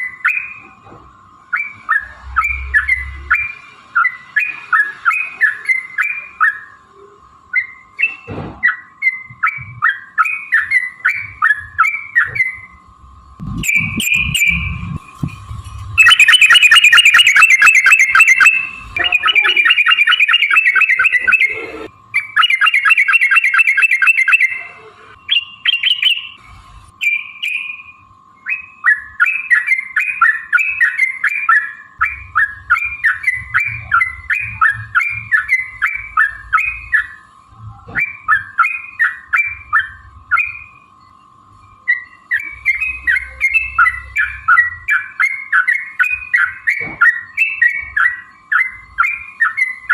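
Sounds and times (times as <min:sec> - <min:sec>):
bird bubbly chirps: 0:13.5 - 0:15.0, 0:16.0 - 0:21.8, 0:22.4 - 0:24.5.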